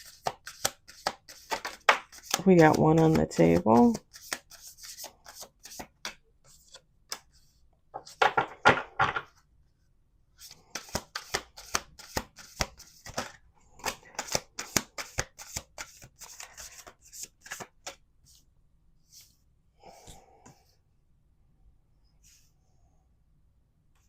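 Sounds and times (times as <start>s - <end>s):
cards being shuffled: 0.0s - 7.3s, 10.4s - 18.0s.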